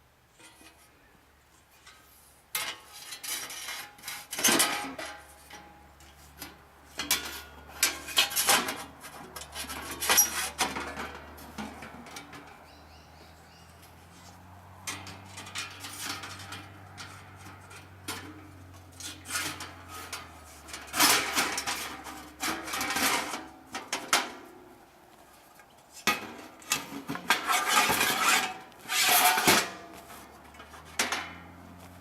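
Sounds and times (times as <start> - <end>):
metal panels clanking and scraping: 2.6 - 12.7, 13.8 - 24.7, 25.9 - 32.0.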